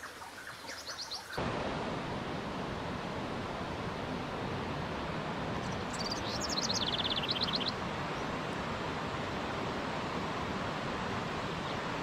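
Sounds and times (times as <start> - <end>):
running water: 0.0 - 12.0
songbird trilling: 5.9 - 7.8.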